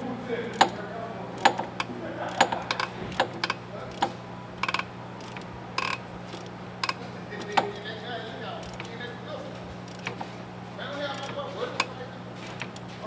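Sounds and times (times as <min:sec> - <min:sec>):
steady low hum: 0:00.0 - 0:13.0
metallic clicks of hand tools: 0:01.4 - 0:07.9, 0:08.6 - 0:09.0, 0:09.8 - 0:10.3, 0:11.1 - 0:13.0.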